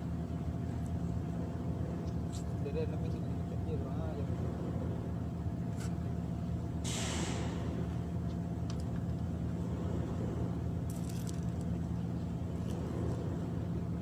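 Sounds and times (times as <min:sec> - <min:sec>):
low engine drone: 0:00.0 - 0:14.0
brief hiss: 0:06.8 - 0:07.6.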